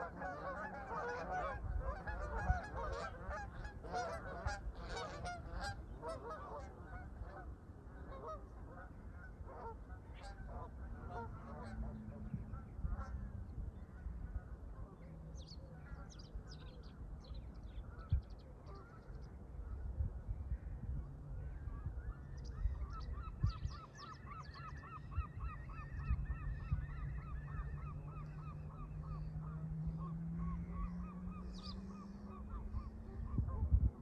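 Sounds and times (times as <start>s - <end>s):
geese honking: 0.0s - 13.2s, 17.8s - 19.1s, 21.8s - 33.7s
low rumble of wind: 0.0s - 34.0s
low hum rising in pitch: 25.3s - 34.0s.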